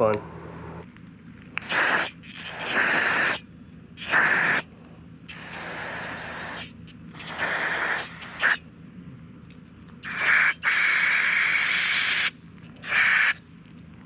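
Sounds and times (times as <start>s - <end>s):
pressurised spray hissing: 1.6s - 3.4s, 4.0s - 4.6s, 5.3s - 8.6s, 10.0s - 13.4s.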